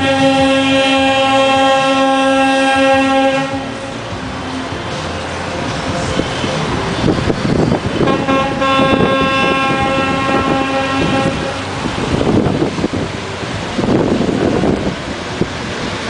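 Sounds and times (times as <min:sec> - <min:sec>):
truck horn blast: 0:00.0 - 0:04.0, 0:08.0 - 0:11.8
engine running: 0:00.0 - 0:16.0
street noise: 0:00.0 - 0:16.0.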